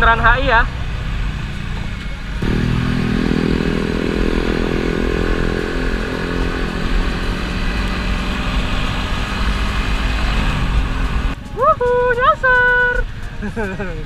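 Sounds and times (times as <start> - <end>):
motorcycle engine running: 2.4 - 11.4.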